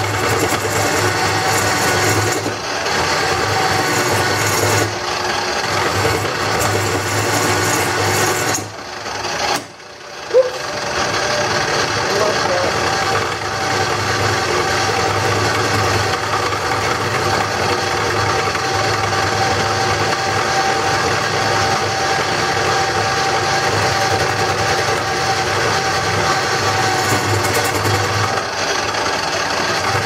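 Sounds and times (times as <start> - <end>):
wood lathe running: 0.0 - 30.0.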